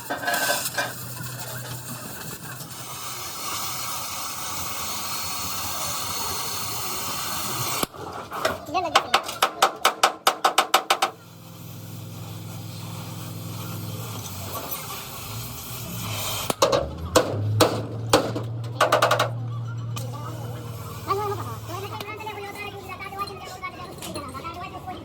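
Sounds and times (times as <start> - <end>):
hammering on metal: 8.9 - 11.2, 16.6 - 19.4
scattered knocks: 9.0 - 11.2, 16.6 - 19.4.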